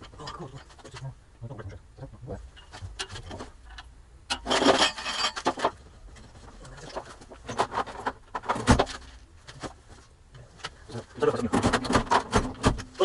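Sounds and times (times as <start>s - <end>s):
metal tools clinking and rattling: 2.6s - 5.8s.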